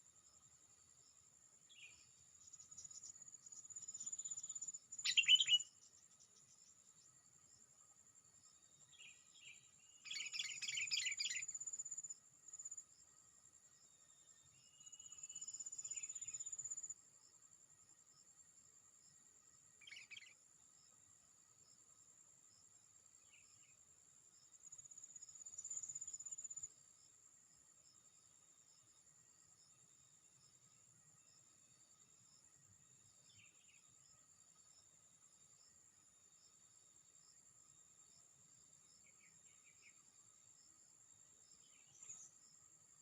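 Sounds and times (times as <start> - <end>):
high-pitched insect whine: 0.3 - 7.6, 8.5 - 13.0.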